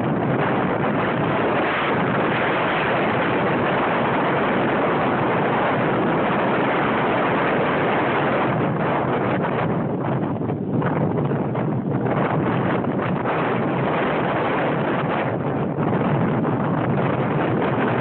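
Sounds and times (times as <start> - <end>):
strong wind on microphone: 0.0 - 18.0.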